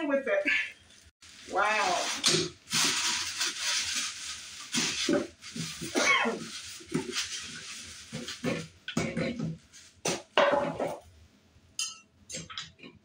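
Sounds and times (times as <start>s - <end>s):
packing wrap crinkling: 1.0s - 10.3s.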